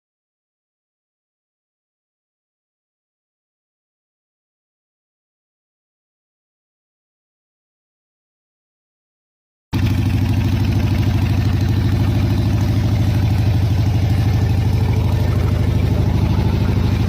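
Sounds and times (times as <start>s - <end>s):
motorcycle engine idling: 9.8s - 17.0s.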